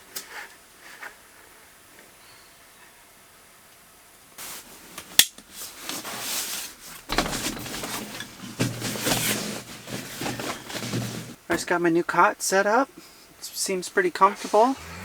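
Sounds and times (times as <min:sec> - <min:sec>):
rustling and handling noises: 0:04.4 - 0:11.7.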